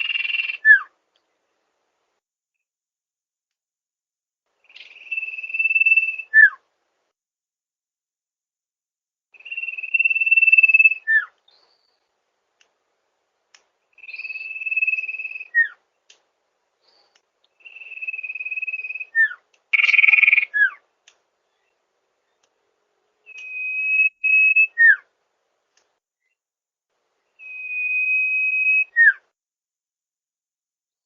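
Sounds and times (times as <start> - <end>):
bird whistling call: 0.0 - 0.9, 4.6 - 6.6, 9.4 - 11.9, 13.9 - 15.8, 17.6 - 20.8, 23.3 - 25.0, 27.4 - 29.2.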